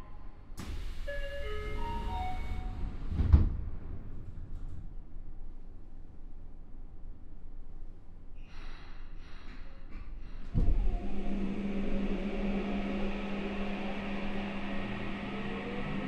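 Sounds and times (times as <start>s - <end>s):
train doors closing thud: 0.6s - 4.0s
steady low hum: 10.5s - 16.0s
rising electric motor tones: 10.7s - 16.0s.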